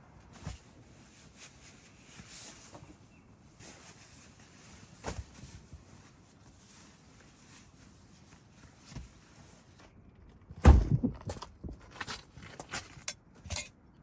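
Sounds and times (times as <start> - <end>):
heavy thump: 10.6 - 11.2.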